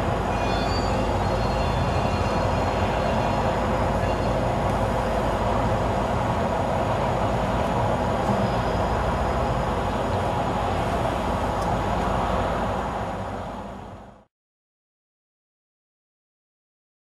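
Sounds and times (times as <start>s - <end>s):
train wheels rolling on rails: 0.0s - 14.1s
faint high-pitched squealing: 0.2s - 5.2s, 8.3s - 9.5s.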